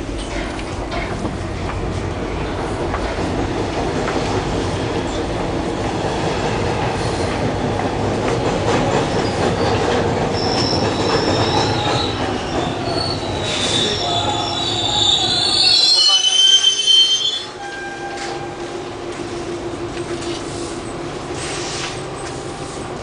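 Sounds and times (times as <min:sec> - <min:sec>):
subway wheels rumbling: 0:00.0 - 0:23.0
steel wheel squeal: 0:10.4 - 0:18.5.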